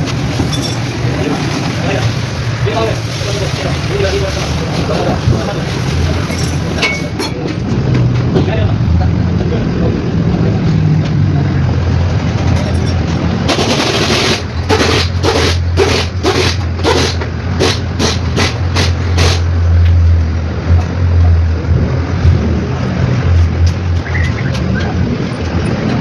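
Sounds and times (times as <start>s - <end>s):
diesel engine running: 0.0s - 26.0s
sharp bursts of noise: 13.4s - 19.8s.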